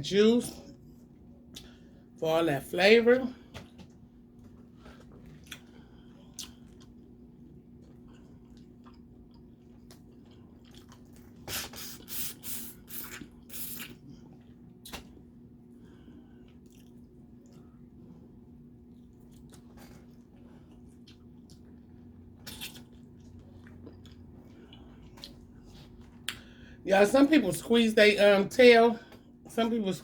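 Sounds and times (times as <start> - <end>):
steady low hum: 0.0 - 30.0
wet chewing and smacking: 3.5 - 12.1, 13.0 - 15.5, 16.1 - 26.6.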